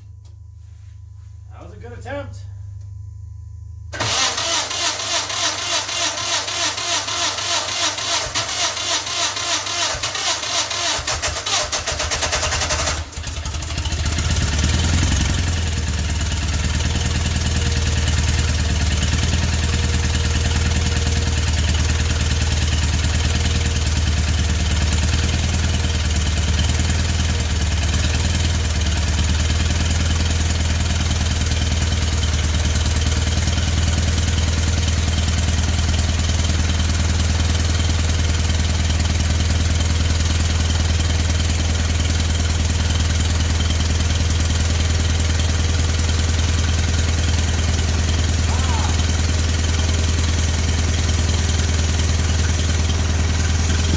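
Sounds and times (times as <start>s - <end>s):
engine starting and running: 3.9s - 53.9s.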